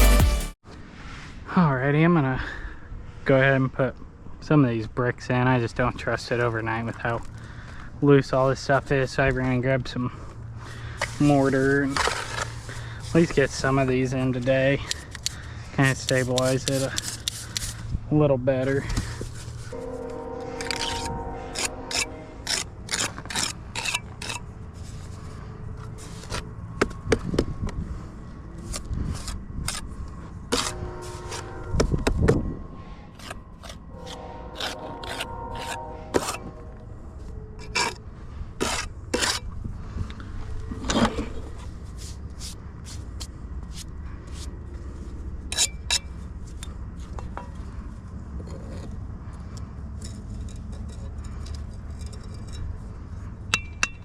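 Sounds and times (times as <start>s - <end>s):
trowel scraping mortar: 10.9s - 17.8s, 18.6s - 25.3s, 28.6s - 32.1s, 33.1s - 36.6s, 37.6s - 38.0s, 38.6s - 39.5s
trowel clinks and taps on bricks: 53.5s - 54.0s.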